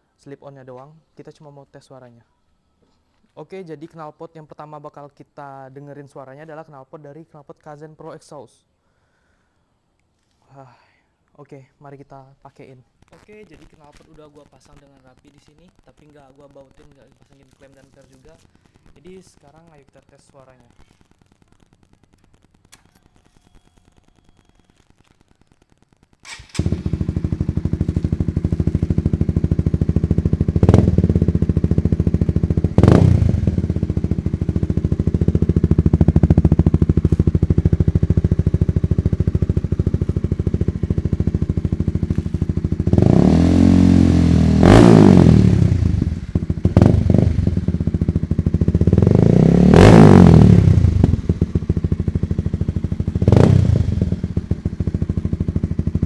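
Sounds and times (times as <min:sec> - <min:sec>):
motorcycle engine idling and revving: 0:26.3 - 0:56.0.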